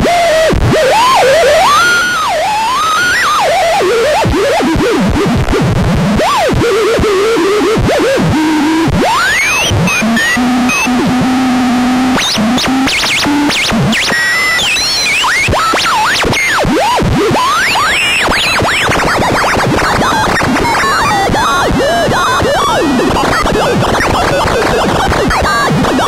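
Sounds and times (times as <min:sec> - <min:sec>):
hissing synthesizer noise: 0:00.6 - 0:26.0
warbling synthesizer pitch glides: 0:06.2 - 0:15.2, 0:15.9 - 0:26.0
fast looping synthesizer sweeps: 0:06.2 - 0:26.0
low synthesizer drone: 0:07.6 - 0:13.5.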